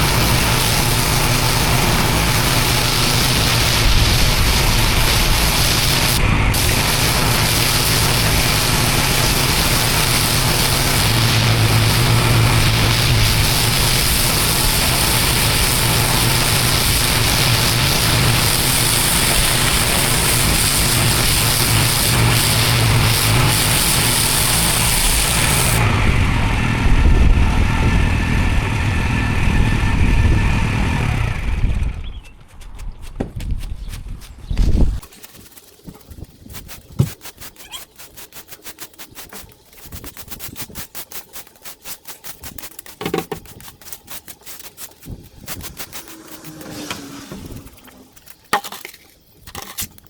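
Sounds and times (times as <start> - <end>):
high-pressure water spray: 0.0 - 25.9, 34.7 - 48.8
pressure washer engine running: 0.0 - 32.1, 35.1 - 48.2.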